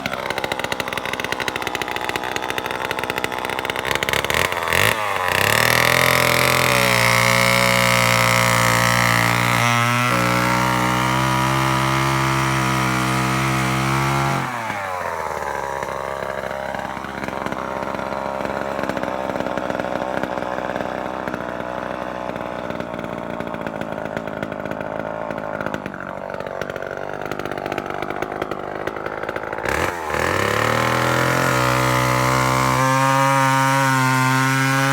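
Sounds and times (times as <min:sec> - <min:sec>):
chainsaw revving and idling: 0:00.0 - 0:34.9.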